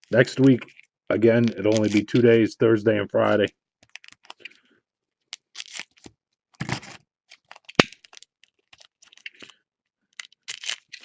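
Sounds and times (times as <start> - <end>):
foil wrappers crinkling: 0.1 - 2.3, 3.9 - 4.6, 5.4 - 11.0.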